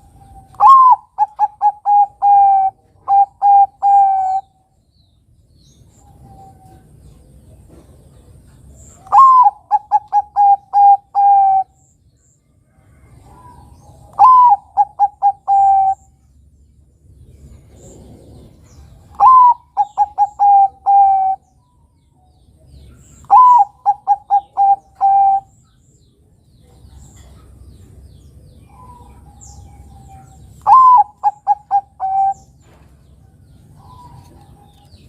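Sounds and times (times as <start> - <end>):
dove cooing: 0.0 - 4.5, 9.0 - 11.8, 13.0 - 16.1, 17.7 - 21.5, 23.2 - 25.6, 28.7 - 35.0.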